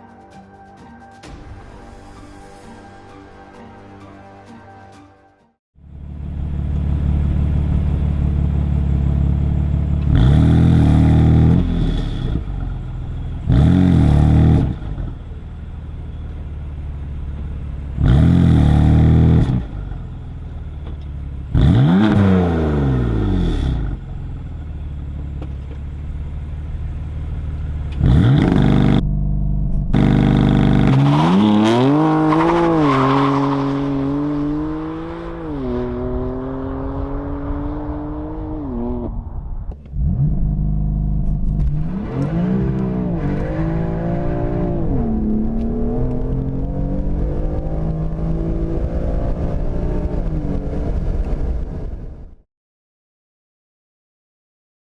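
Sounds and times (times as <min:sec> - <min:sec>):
car engine revving and accelerating: 0:09.3 - 0:15.2, 0:17.8 - 0:20.1, 0:21.5 - 0:24.3, 0:27.8 - 0:51.2.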